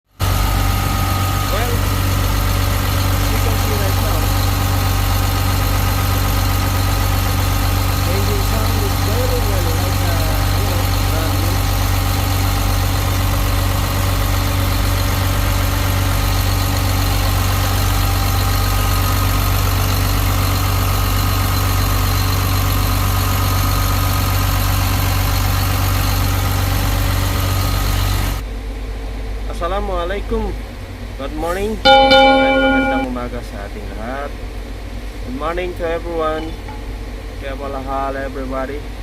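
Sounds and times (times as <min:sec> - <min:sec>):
diesel engine idling: 0:00.2 - 0:28.4.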